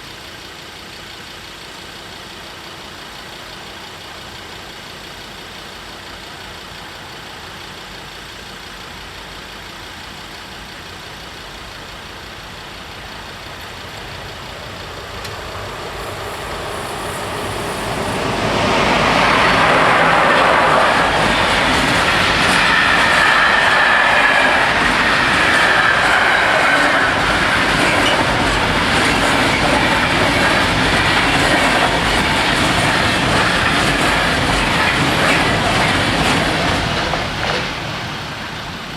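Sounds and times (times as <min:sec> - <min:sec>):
freight train rumbling past: 0:11.2 - 0:38.9.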